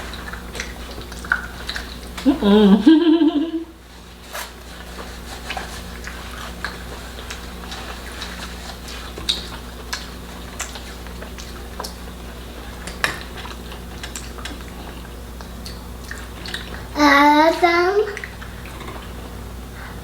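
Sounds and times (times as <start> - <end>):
person humming: 2.3 - 3.7
mouth clicks while eating: 9.2 - 12.1.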